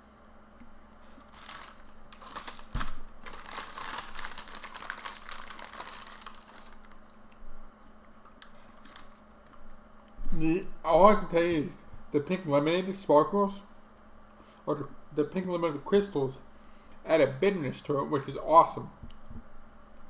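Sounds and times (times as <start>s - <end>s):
faint steady hum: 0.0s - 20.0s
paper bag crinkling: 1.0s - 7.2s, 8.3s - 9.6s.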